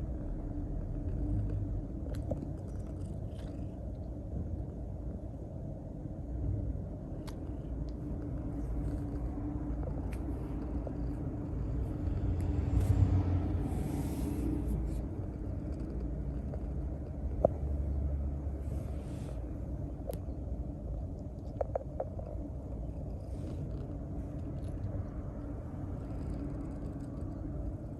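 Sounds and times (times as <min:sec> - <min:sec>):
cat purring: 0:00.0 - 0:05.3, 0:07.1 - 0:27.9
soft rustle: 0:07.8 - 0:17.8.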